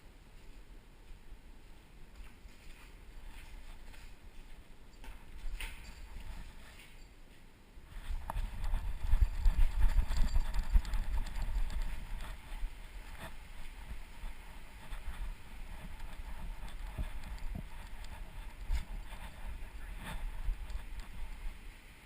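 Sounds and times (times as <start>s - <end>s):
camera shaking and thudding: 2.2s - 7.0s, 7.9s - 21.6s.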